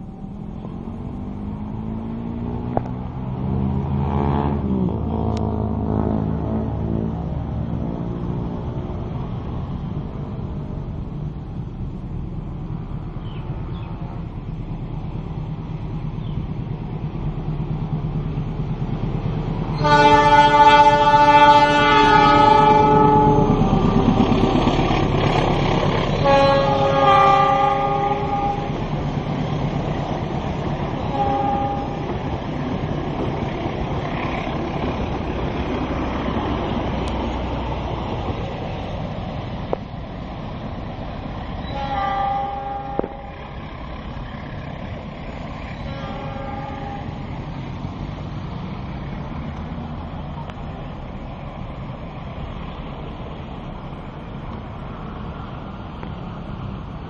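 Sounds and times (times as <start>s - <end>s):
train rumbling past: 0.0s - 57.0s
train horn blasts: 19.7s - 23.8s, 26.1s - 28.8s, 31.0s - 32.2s, 41.6s - 43.5s, 45.8s - 47.3s.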